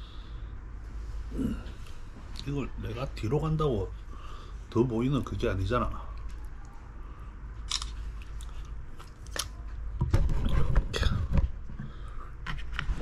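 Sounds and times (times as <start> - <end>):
person chewing wetly: 7.7 - 9.4.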